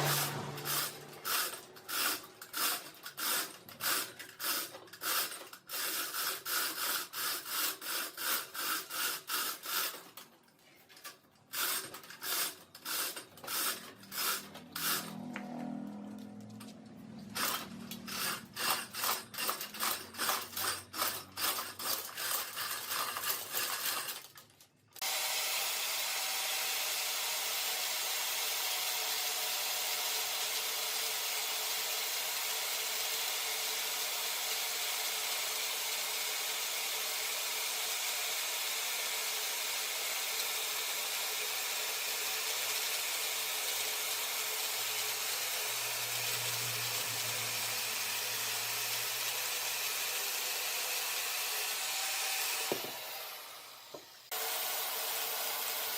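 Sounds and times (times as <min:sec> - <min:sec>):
rasping strokes on wood: 0:00.0 - 0:10.0.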